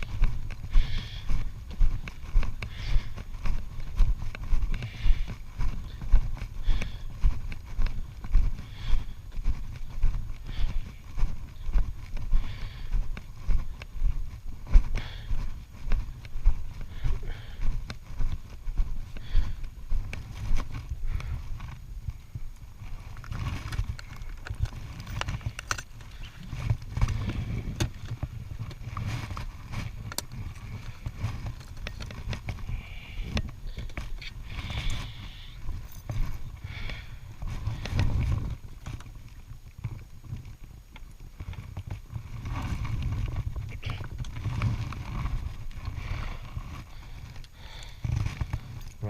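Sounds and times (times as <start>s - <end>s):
motorcycle engine and wind rumble: 15.8s - 49.0s.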